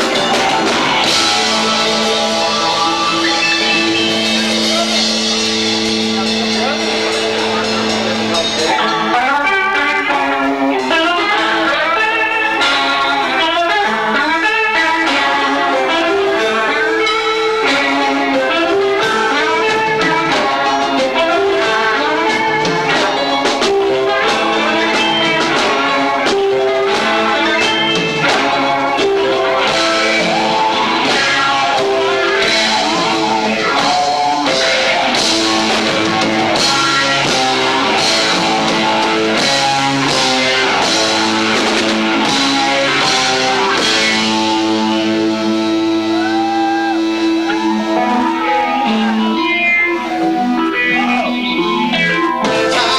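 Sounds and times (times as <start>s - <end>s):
drums and cymbals: 0.0s - 52.9s
live rock band playing: 0.0s - 52.9s.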